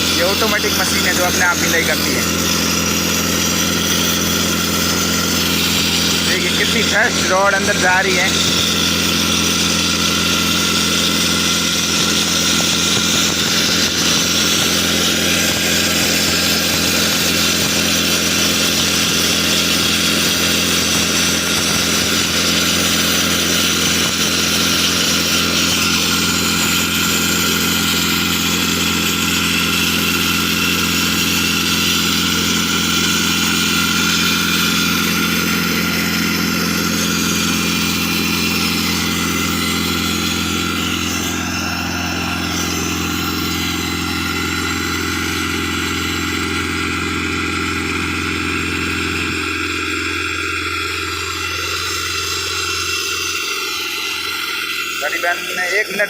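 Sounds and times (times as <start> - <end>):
engine hum: 0.0 - 56.0
rock drilling rig boring: 0.0 - 56.0.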